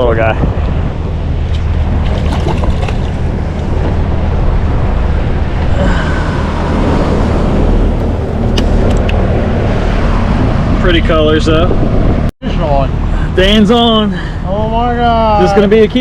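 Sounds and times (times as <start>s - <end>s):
water noise: 0.0s - 16.0s
wind buffeting microphone: 0.0s - 16.0s
boat motor humming: 0.5s - 10.8s.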